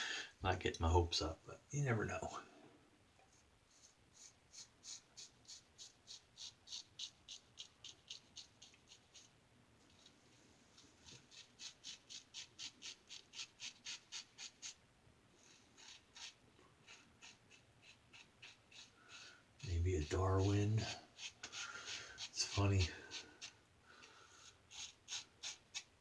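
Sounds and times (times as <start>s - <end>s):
razor scraping stubble: 3.7s - 9.3s, 10.8s - 14.8s, 15.4s - 25.9s.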